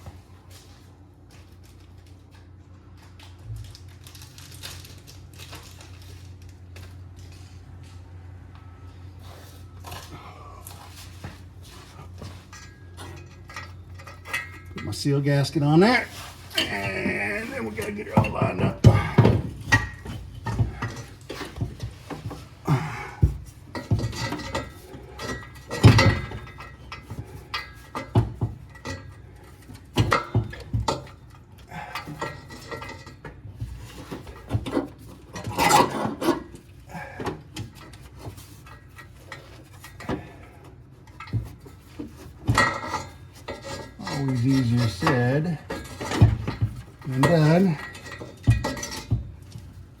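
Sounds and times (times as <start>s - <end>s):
metal clanks and knocks: 10.9s - 50.0s.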